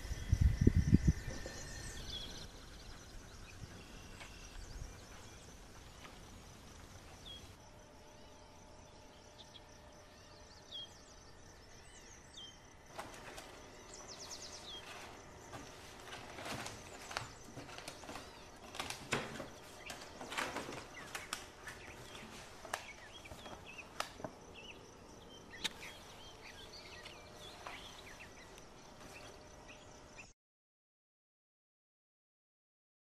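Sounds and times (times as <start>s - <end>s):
wind gusts on microphone: 0.0s - 2.6s
bird chirping: 0.0s - 30.3s
paper rustling: 12.9s - 24.4s.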